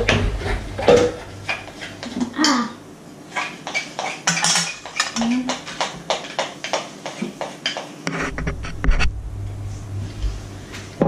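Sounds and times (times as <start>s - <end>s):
low hum: 0.0s - 2.9s, 8.1s - 11.0s
spoon tapping mixing bowl: 3.6s - 7.9s.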